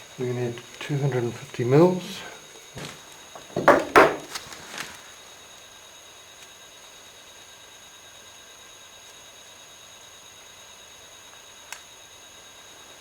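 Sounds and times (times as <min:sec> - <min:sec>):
low hiss with high whine: 0:00.0 - 0:13.0
soft knock: 0:03.4 - 0:04.3.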